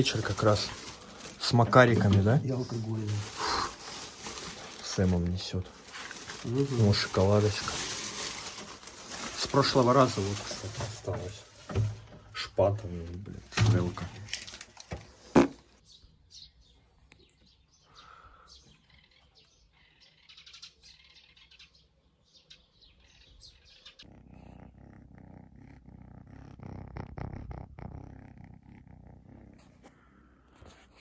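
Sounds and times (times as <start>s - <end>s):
kitten purring: 0.0s - 11.5s, 23.9s - 31.0s
quiet handling sounds: 13.0s - 15.2s.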